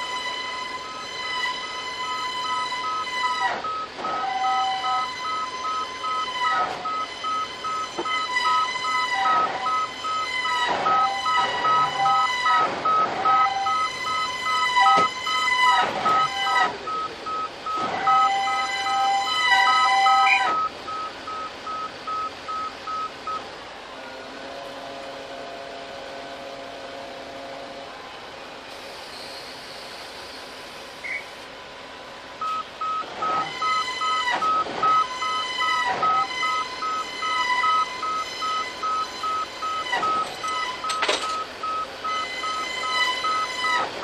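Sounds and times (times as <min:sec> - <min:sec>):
reversing alarm beeping: 0:00.0 - 0:23.5, 0:32.4 - 0:44.0
horn blasts: 0:04.1 - 0:05.6, 0:17.8 - 0:20.6, 0:24.0 - 0:28.0.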